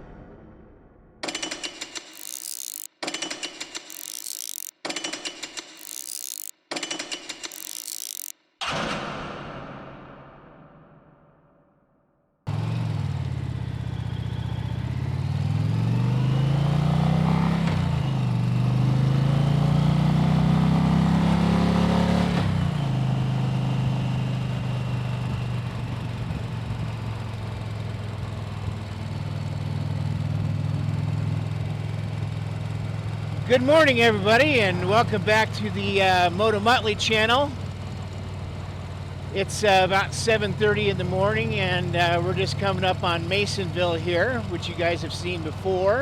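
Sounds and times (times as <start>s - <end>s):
motorcycle engine revving: 12.5s - 46.0s.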